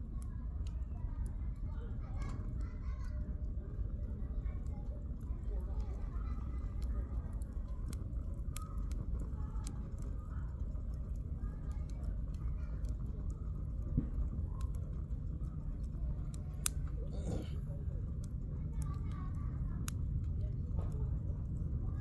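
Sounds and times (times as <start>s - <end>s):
campfire crackling and popping: 0.0s - 21.8s.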